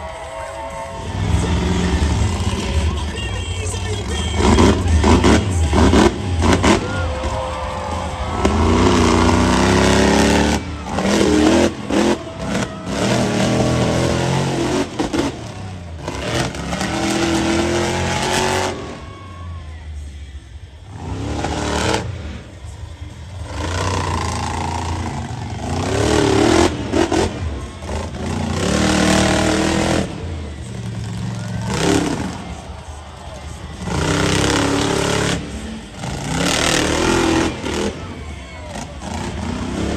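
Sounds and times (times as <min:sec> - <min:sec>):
truck engine revving hard: 0:00.0 - 0:39.9.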